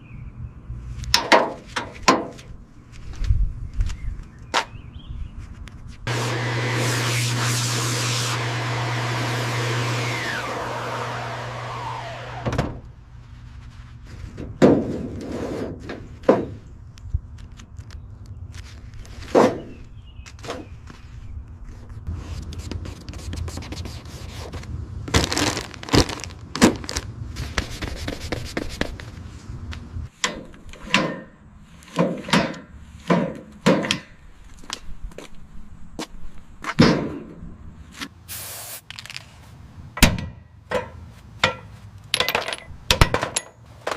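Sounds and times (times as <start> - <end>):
machine whine winding down: 6.1 - 13.0.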